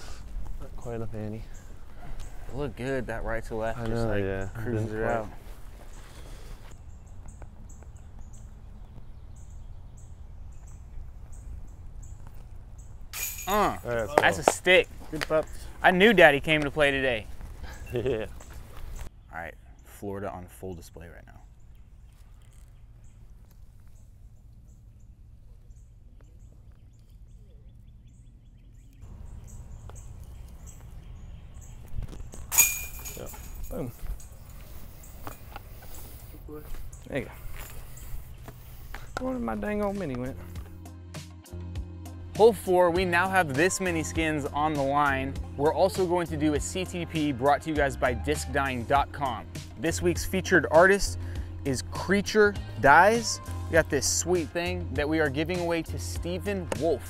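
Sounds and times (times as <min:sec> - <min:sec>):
bird chirping: 0:00.0 - 0:40.7
low outdoor rumble: 0:20.4 - 0:40.8.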